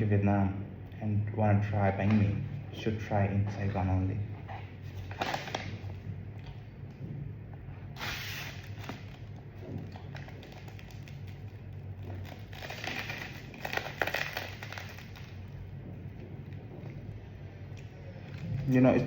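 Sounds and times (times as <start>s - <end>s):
steady low hum: 0.0s - 19.0s
sandwich wrapper crinkling: 8.5s - 17.1s.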